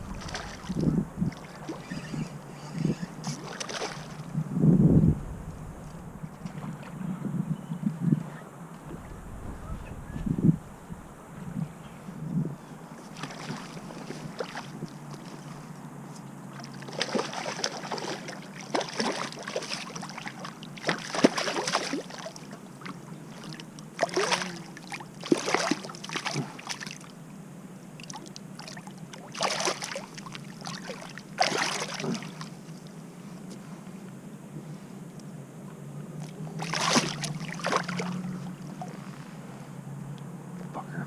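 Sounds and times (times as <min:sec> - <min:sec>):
water splashing in a stream: 0:00.0 - 0:02.1, 0:03.2 - 0:04.3, 0:13.1 - 0:15.6, 0:16.5 - 0:27.1, 0:28.0 - 0:32.8, 0:36.2 - 0:39.0.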